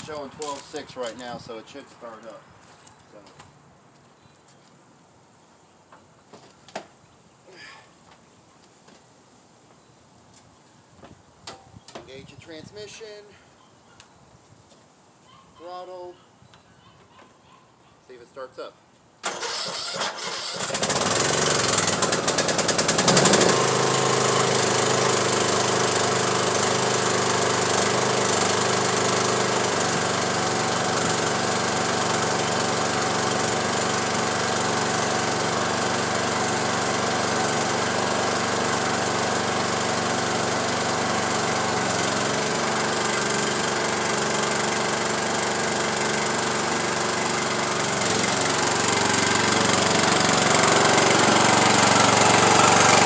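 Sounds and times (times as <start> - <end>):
engine starter cranking: 19.2 - 24.0, 48.8 - 53.0
lawn tractor engine running: 19.2 - 53.0.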